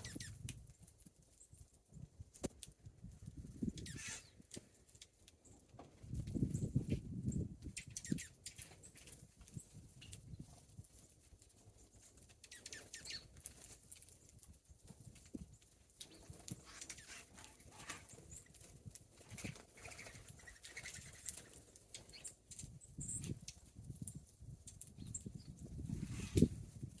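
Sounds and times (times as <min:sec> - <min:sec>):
faint bird chirps: 0:00.0 - 0:00.4, 0:03.6 - 0:04.8, 0:12.4 - 0:13.4, 0:19.3 - 0:23.6
bird wings fluttering: 0:05.7 - 0:27.0.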